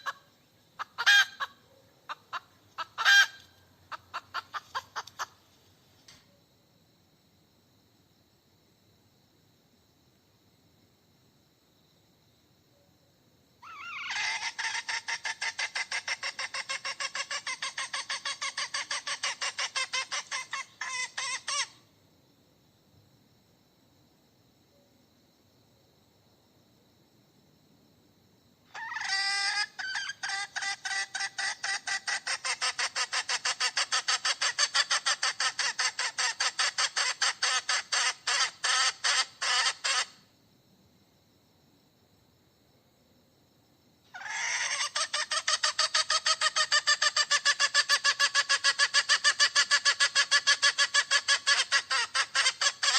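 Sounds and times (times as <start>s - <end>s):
hen cackling: 0.0s - 0.2s, 0.8s - 5.4s, 13.6s - 21.8s, 28.7s - 40.2s, 44.1s - 52.9s.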